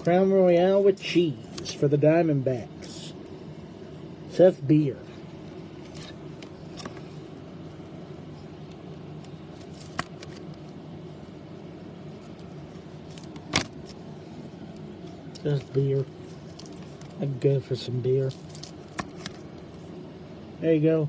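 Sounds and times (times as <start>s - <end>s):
low background hum: 0.0s - 21.0s
trading cards rustling: 9.2s - 10.7s, 18.1s - 19.6s.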